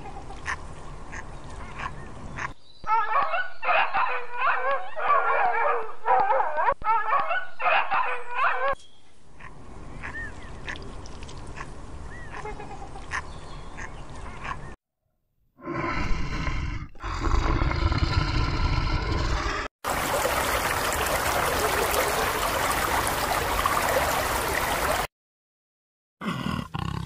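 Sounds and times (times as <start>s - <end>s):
outdoor ambience: 0.0s - 14.8s.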